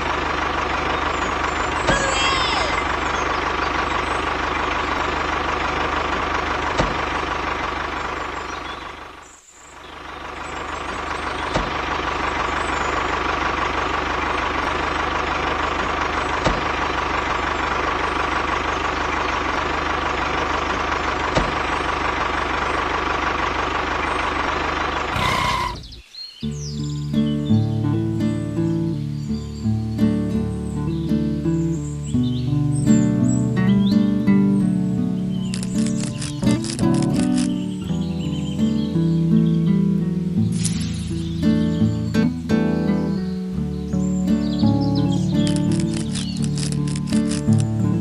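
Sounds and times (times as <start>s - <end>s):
tractor engine running: 0.0s - 48.0s
short clicks: 35.5s - 37.6s, 45.4s - 47.7s.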